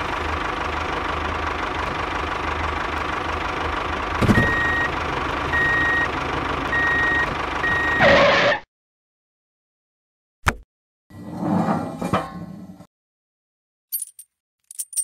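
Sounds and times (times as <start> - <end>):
tractor engine running: 0.0 - 8.5
reversing alarm beeps: 4.4 - 4.9, 5.5 - 6.1, 6.7 - 8.2.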